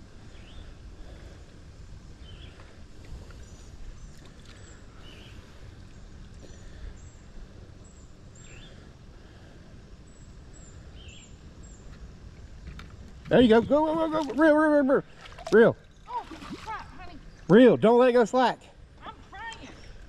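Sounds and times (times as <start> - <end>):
river rumble: 12.4 - 20.0.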